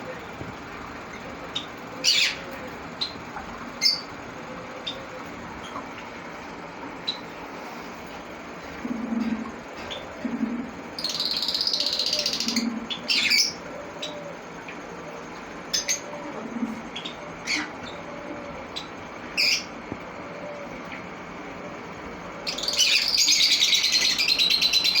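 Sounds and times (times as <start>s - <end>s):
parrots chattering rapidly: 1.5s - 4.1s, 8.6s - 14.5s, 15.6s - 18.1s, 18.7s - 19.7s, 22.5s - 25.0s
parrots squawking: 8.9s - 14.2s, 15.7s - 18.1s.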